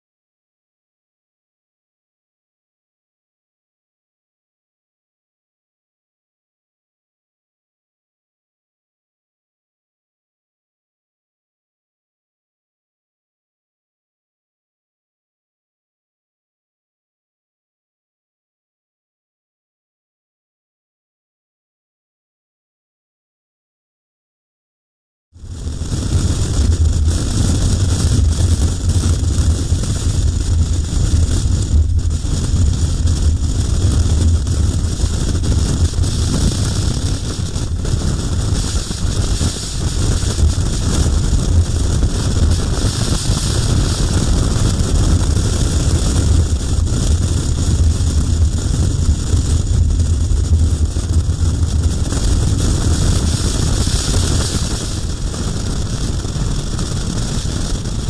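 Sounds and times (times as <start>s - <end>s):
motorcycle engine drone: 25.4s - 58.0s
wind buffeting microphone: 25.4s - 58.0s.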